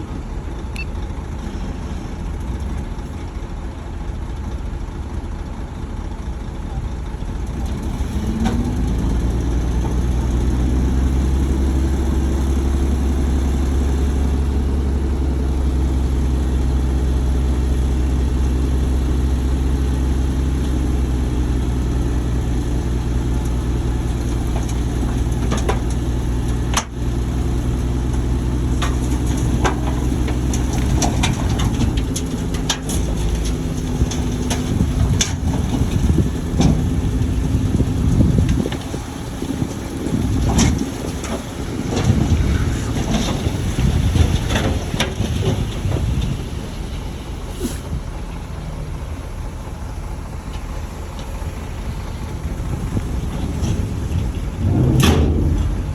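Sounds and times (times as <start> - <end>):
bulldozer diesel engine humming: 0.0 - 55.9
sharp metal clanks and knocks: 53.5 - 55.9.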